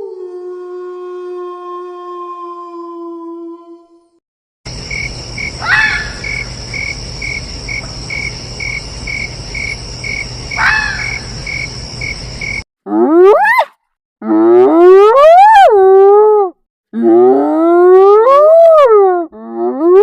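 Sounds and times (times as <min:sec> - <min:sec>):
loud sweeping insect calls: 0:04.7 - 0:12.6
crickets chirping: 0:04.7 - 0:12.7.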